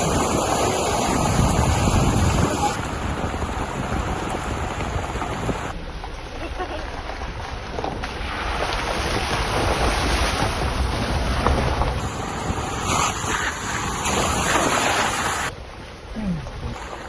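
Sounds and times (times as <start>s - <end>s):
rushing water: 0.0s - 5.8s, 7.0s - 17.0s
wind buffeting microphone: 0.0s - 5.8s, 8.4s - 15.5s.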